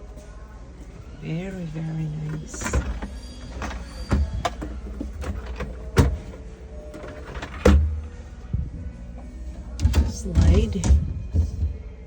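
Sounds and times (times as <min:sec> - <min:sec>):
refrigerator doors and drawers: 0:01.3 - 0:08.6, 0:09.5 - 0:12.0
low steady rumble: 0:04.4 - 0:12.0.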